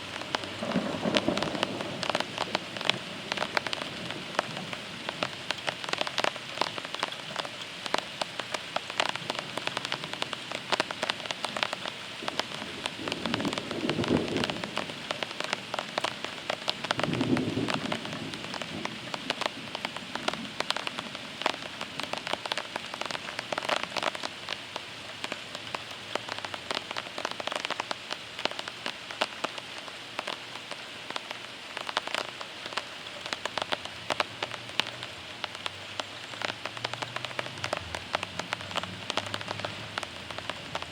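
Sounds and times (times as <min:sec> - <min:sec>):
heavy rain pattering: 0:00.0 - 0:40.9
low thunder rumbles: 0:00.4 - 0:04.8, 0:12.6 - 0:15.0, 0:16.9 - 0:19.3.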